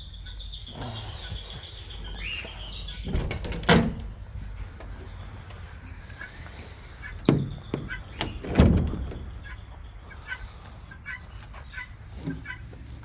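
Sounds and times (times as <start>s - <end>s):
small birds peeping: 0.0s - 13.0s
door being handled: 3.0s - 4.2s, 7.2s - 9.4s.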